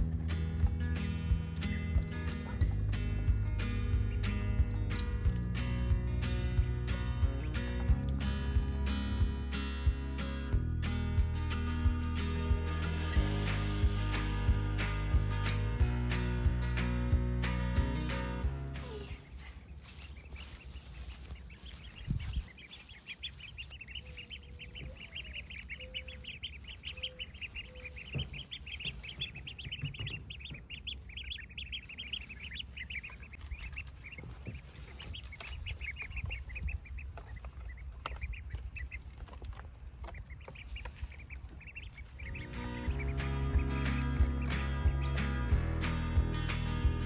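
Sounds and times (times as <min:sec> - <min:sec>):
low rumble: 0:00.0 - 0:19.3, 0:41.7 - 0:47.0
ducklings peeping: 0:00.0 - 0:47.0.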